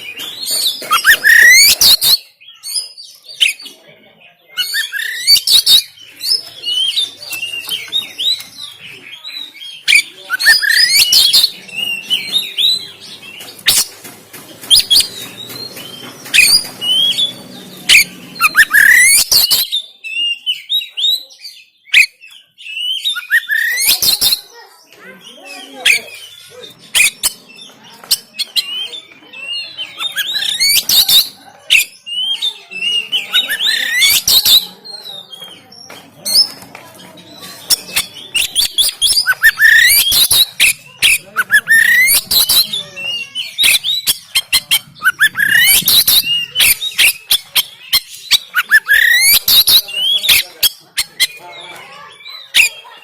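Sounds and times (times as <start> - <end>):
bird singing and chattering: 0.0 - 53.0.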